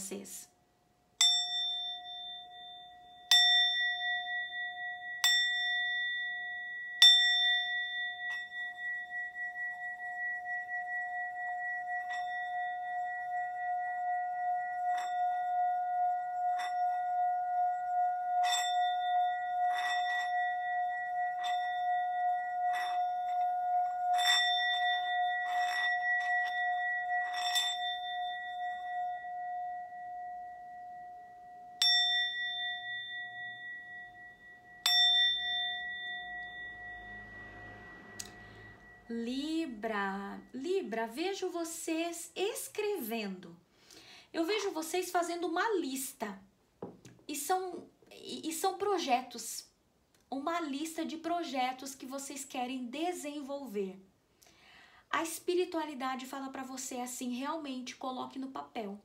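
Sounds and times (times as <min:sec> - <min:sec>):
singing bowl struck: 0:01.2 - 0:39.3
singing bowl ringing tone: 0:01.2 - 0:40.6.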